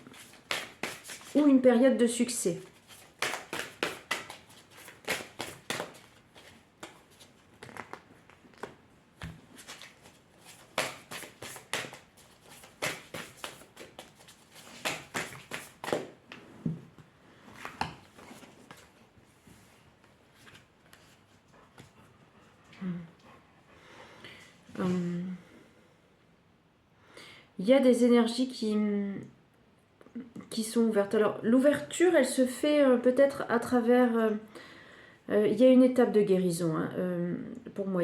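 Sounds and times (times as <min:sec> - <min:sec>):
cards being shuffled: 0:00.0 - 0:01.4, 0:02.6 - 0:16.2.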